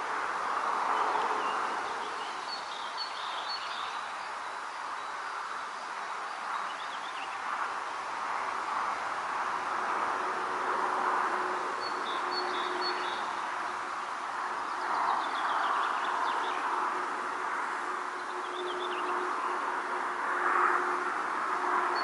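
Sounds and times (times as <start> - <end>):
small birds chirping: 1.4 - 5.1.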